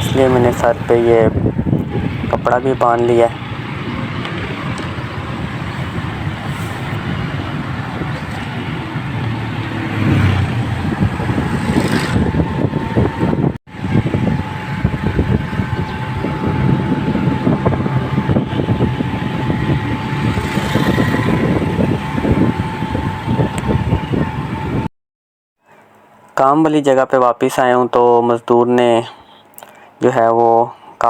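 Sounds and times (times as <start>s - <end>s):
vehicle engine and road noise: 0.0s - 24.9s
thin steady tone: 1.9s - 7.0s.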